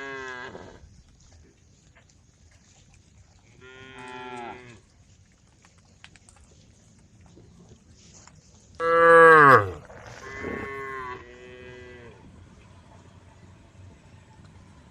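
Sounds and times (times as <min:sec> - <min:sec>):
cow mooing: 0:08.8 - 0:12.2.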